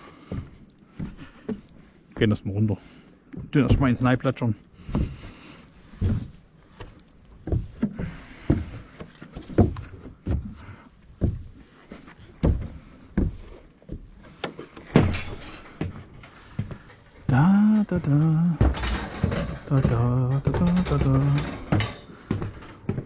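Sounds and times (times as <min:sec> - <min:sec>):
heavy footsteps: 0:04.8 - 0:23.0.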